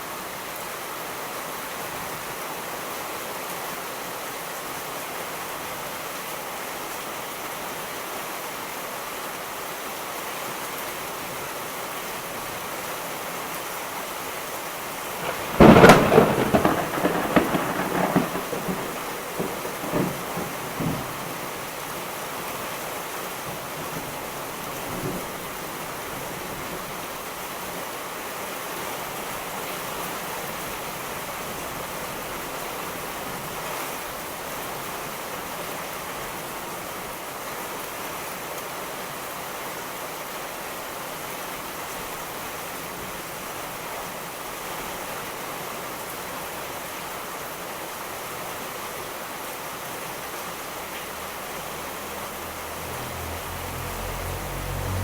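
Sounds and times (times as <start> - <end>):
heavy rainfall hissing: 0.0 - 55.0.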